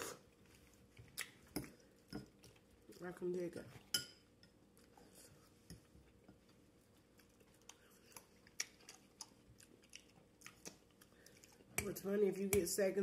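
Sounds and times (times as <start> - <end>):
chewing vegetables: 4.7 - 11.8.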